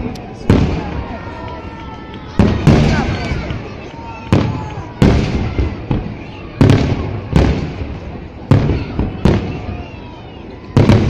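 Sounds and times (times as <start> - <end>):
fireworks booming: 0.0 - 11.0
low rolling echo: 0.0 - 11.0.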